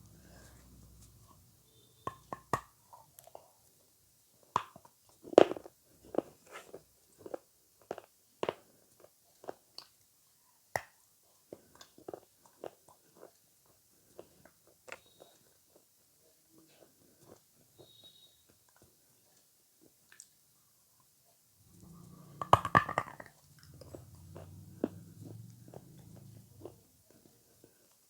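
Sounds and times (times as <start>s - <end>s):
faint low hum: 0.0s - 2.6s, 21.6s - 28.0s.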